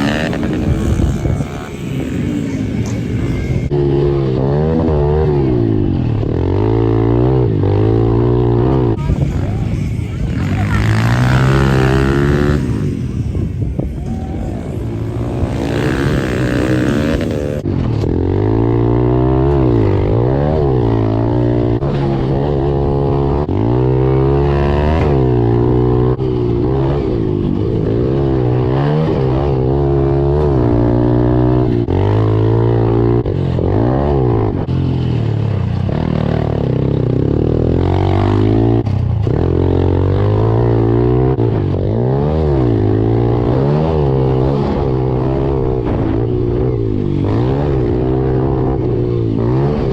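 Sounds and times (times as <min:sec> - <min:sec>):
motorbike engine revving: 0:00.0 - 0:49.9.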